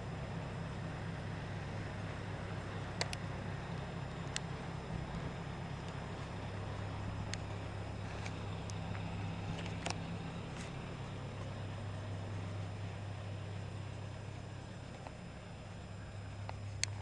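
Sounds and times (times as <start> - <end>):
diesel engine idling: 0.0 - 17.0
faint clicks: 2.8 - 3.4, 4.2 - 10.8, 14.3 - 15.2, 16.4 - 17.0.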